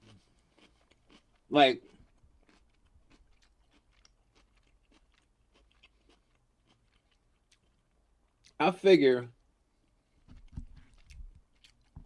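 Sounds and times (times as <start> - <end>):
chewing food: 0.0 - 8.6, 9.3 - 12.0.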